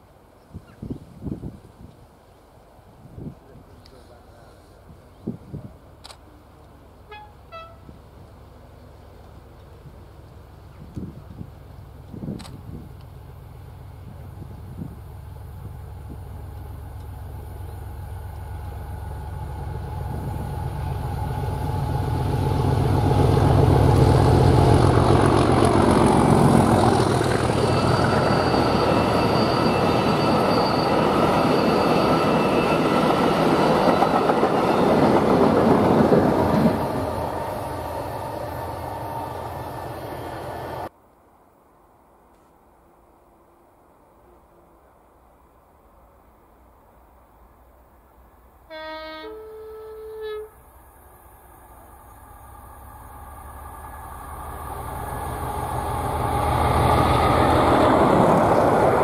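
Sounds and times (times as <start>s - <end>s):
diesel locomotive rumble: 3.2s - 40.9s, 49.2s - 59.0s
high ringing tones: 26.8s - 35.1s.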